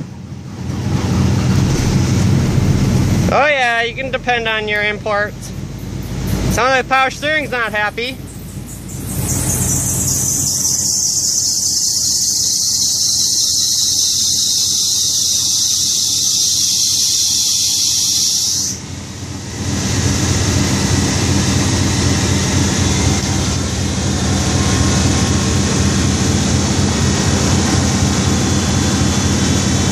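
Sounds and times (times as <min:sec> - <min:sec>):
car engine running: 0:00.0 - 0:13.8, 0:18.8 - 0:29.9
high-pitched squeal: 0:00.0 - 0:18.8.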